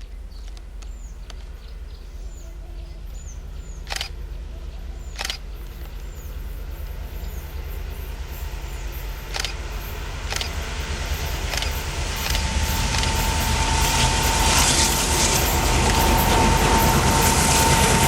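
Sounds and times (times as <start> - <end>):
diesel locomotive engine rumble: 0.0 - 18.0
thin steady whine: 0.0 - 18.0
sharp clicks: 3.8 - 4.2, 5.2 - 6.0, 9.3 - 9.6, 10.3 - 10.6, 11.5 - 13.3.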